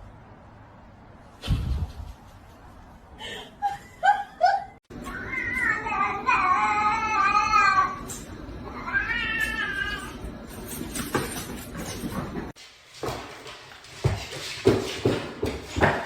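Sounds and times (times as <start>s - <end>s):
cat meowing: 5.0s - 10.2s.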